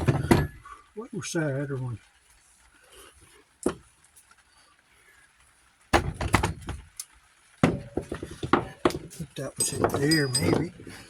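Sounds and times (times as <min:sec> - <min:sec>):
metal parts knocking: 0:00.0 - 0:00.6, 0:06.0 - 0:07.0, 0:07.6 - 0:11.0
metal tools clanking and rattling: 0:00.0 - 0:00.7, 0:06.0 - 0:07.0, 0:07.6 - 0:11.0.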